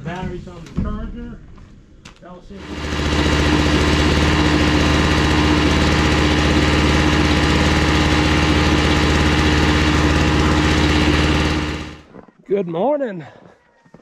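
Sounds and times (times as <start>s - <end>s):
generator engine running: 2.6s - 12.1s.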